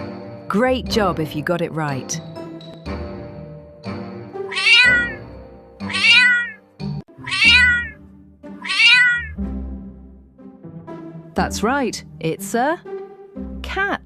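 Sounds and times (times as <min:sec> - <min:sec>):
background music: 0:00.0 - 0:14.0
cat meowing: 0:04.5 - 0:06.6, 0:07.2 - 0:08.0, 0:08.6 - 0:09.4.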